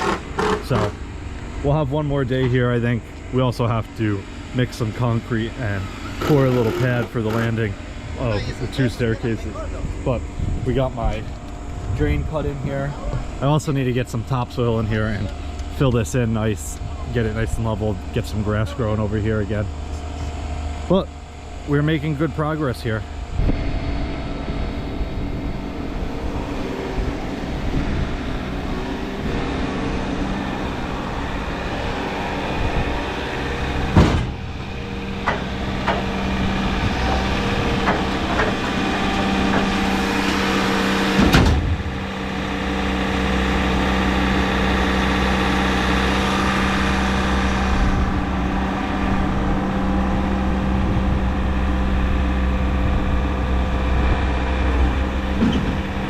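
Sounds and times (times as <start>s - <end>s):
machine motor humming: 0.0s - 10.5s, 11.1s - 56.0s
loud sharp knocks: 33.9s - 36.2s, 41.1s - 41.8s.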